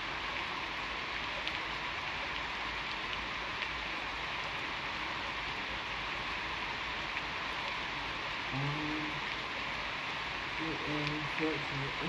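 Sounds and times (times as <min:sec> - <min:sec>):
steady rain hissing: 0:00.0 - 0:12.0
sharp raindrop ticks: 0:00.2 - 0:05.6, 0:07.0 - 0:07.8, 0:08.5 - 0:09.6, 0:10.5 - 0:12.0.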